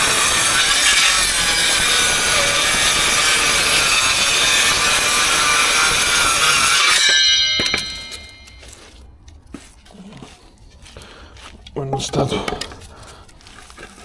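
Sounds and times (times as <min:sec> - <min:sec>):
saw motor whining down: 0:00.0 - 0:08.6
circular saw cutting timber: 0:00.0 - 0:09.0.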